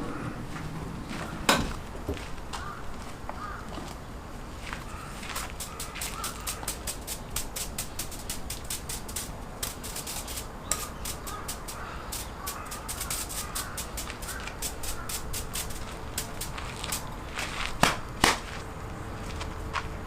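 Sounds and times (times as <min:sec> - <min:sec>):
faint bird calls: 0:00.0 - 0:01.5, 0:02.5 - 0:04.1, 0:04.7 - 0:06.8, 0:10.6 - 0:15.7
fire crackling and popping: 0:04.6 - 0:18.5.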